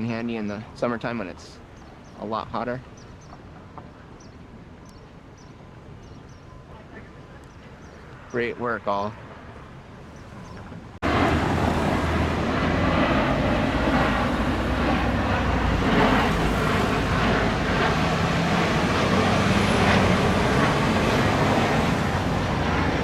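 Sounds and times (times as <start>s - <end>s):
road traffic: 0.0s - 23.0s.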